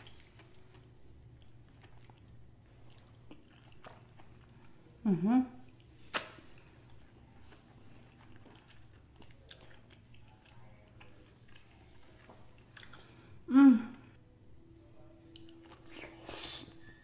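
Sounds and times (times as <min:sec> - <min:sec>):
person chewing wetly: 0:00.0 - 0:04.9, 0:05.6 - 0:13.3.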